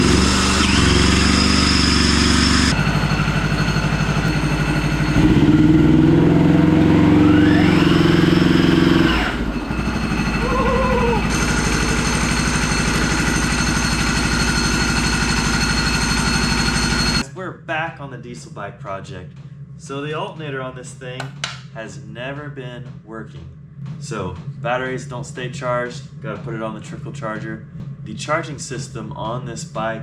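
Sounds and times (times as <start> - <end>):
diesel motorcycle engine running: 0.0 - 17.2
rising whine: 0.0 - 17.2.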